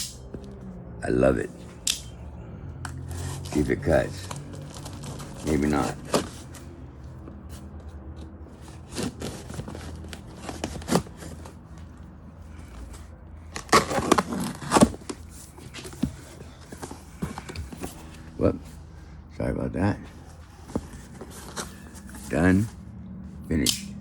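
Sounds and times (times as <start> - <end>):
knife cutting open a package: 8.7 - 11.5, 13.5 - 16.2
package ripping and rustling: 13.6 - 15.2.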